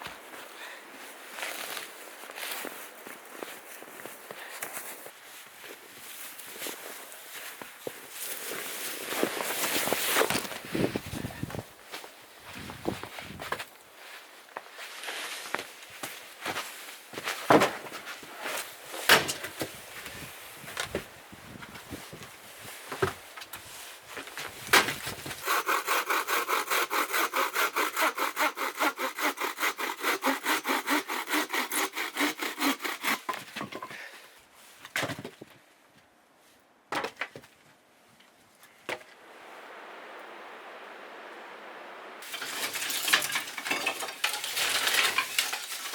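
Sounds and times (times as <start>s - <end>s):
hand saw cutting wood: 25.4s - 33.8s, 42.2s - 45.9s.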